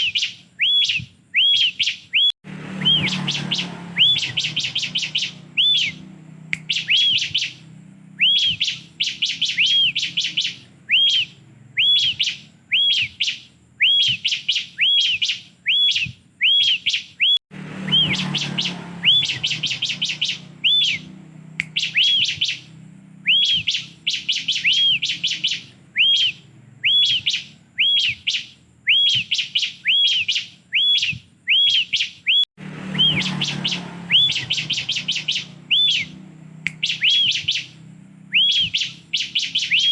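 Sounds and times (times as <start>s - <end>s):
bird high chirps: 0.0s - 39.9s.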